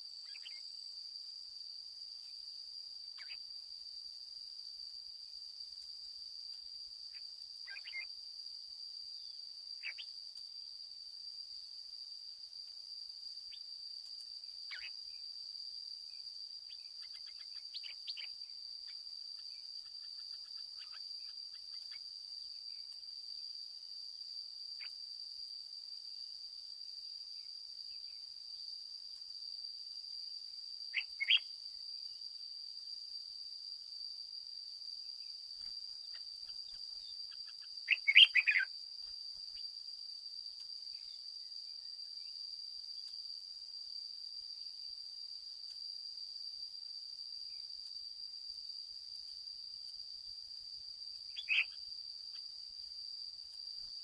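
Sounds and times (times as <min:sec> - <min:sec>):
high insect drone: 0:00.0 - 0:54.0
bird chirping: 0:00.2 - 0:00.6, 0:03.2 - 0:03.4, 0:07.1 - 0:08.1, 0:09.8 - 0:10.1, 0:14.7 - 0:15.0, 0:16.7 - 0:22.0, 0:30.9 - 0:31.5, 0:36.1 - 0:38.7, 0:51.3 - 0:51.8.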